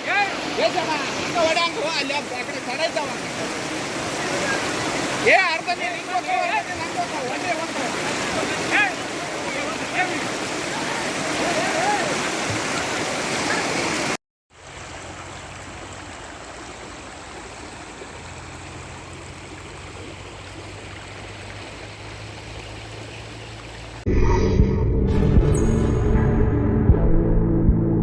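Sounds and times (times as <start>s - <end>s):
rainwater rushing: 0.0s - 24.0s
low hum: 24.1s - 28.0s.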